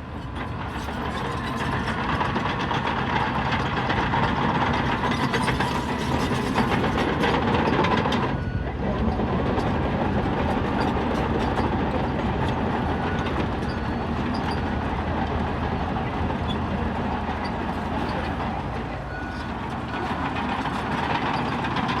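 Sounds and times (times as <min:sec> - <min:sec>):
diesel engine running: 0:00.0 - 0:22.0
clanks and clicks: 0:17.3 - 0:22.0.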